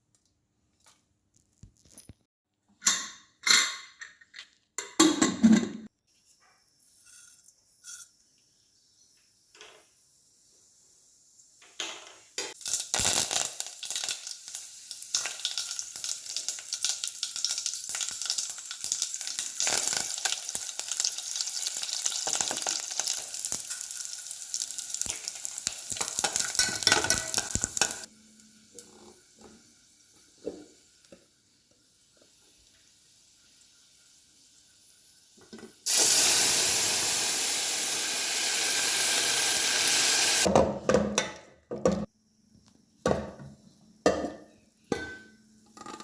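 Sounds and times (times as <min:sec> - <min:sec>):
hot oil sizzling in a pot: 0:08.7 - 0:40.5.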